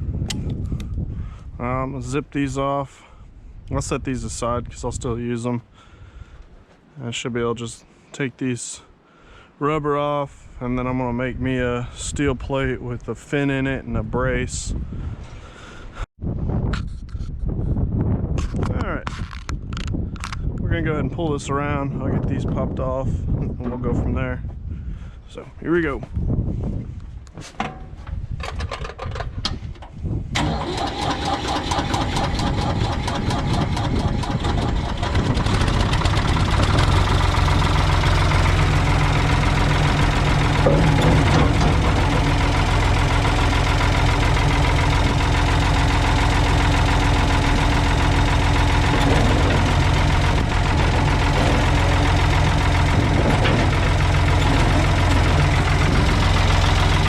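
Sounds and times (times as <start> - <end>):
starter clicks: 30.4 - 57.0
tractor engine idling: 30.4 - 57.0.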